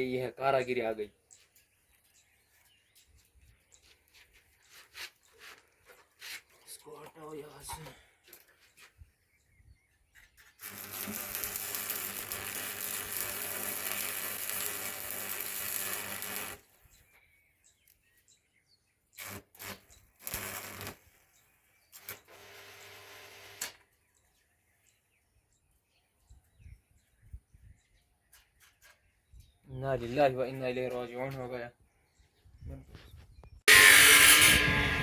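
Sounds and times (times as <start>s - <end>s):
welding arc crackling and buzzing: 10.6s - 16.6s, 19.2s - 21.3s, 33.7s - 35.0s.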